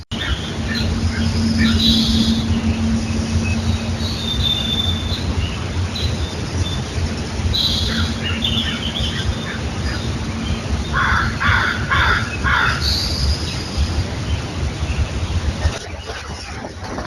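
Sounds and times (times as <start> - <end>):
steady low rumble: 0.0 - 17.0
loud bird calls: 0.1 - 13.9.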